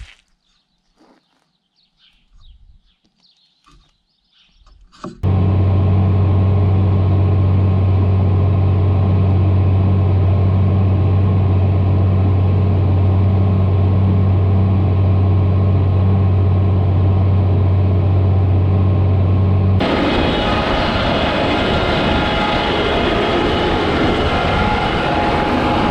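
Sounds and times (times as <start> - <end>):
tractor engine droning: 5.2 - 25.9.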